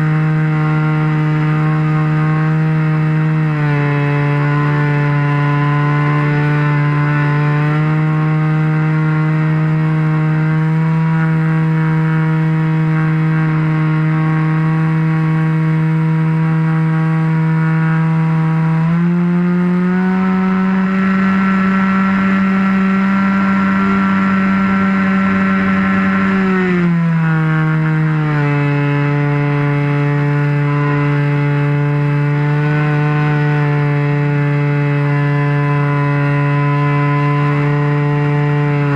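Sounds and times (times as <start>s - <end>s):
model airplane engine: 0.0s - 38.9s.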